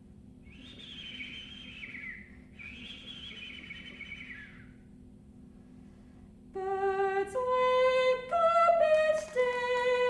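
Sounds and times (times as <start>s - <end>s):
person whistling bird calls: 0.4s - 4.8s.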